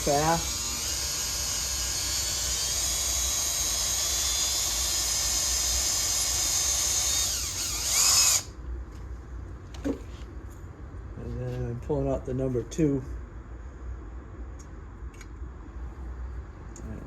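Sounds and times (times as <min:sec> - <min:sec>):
electric drill whining into metal: 0:00.0 - 0:08.5.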